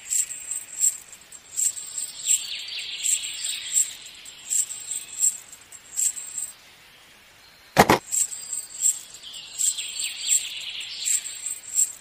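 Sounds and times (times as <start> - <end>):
metal chain jangling: 0.0 - 6.5, 8.0 - 12.0
sharp knock: 7.8 - 8.0.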